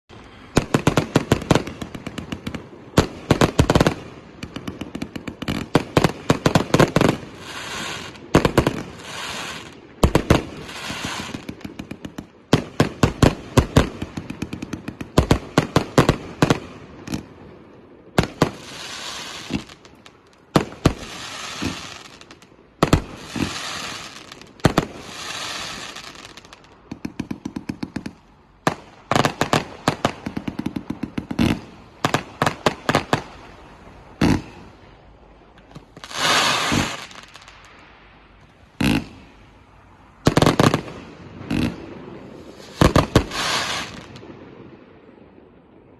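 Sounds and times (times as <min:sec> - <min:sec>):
firework shells hissing: 0:42.6 - 0:44.2.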